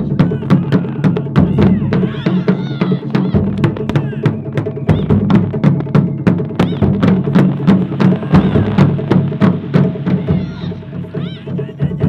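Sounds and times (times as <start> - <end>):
deep drum tones: 0.0 - 12.0.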